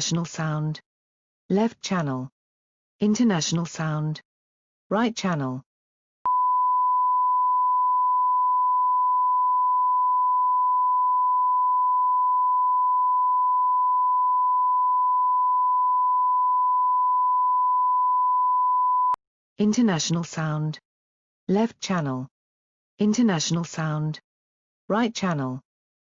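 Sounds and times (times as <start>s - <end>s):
sine-wave tone: 6.3s - 19.2s.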